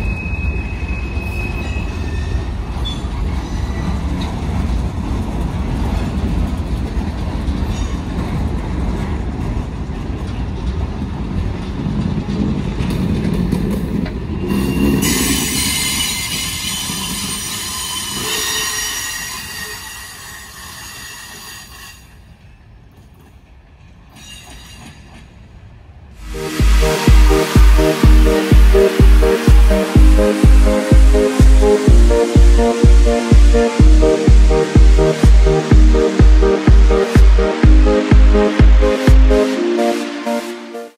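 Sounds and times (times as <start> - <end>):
train wheels rumbling and clacking: 0.0 - 21.4, 22.9 - 25.5
wheel squeal: 14.4 - 22.0.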